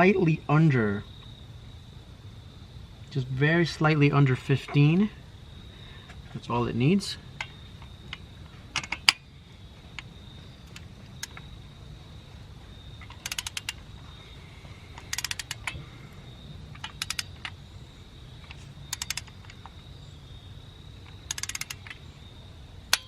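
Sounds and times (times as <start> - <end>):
steady low hum: 0.0 - 23.0
torque wrench ratchet clicking: 13.1 - 13.8, 15.0 - 15.8, 16.8 - 17.6, 18.5 - 19.7, 21.1 - 22.0.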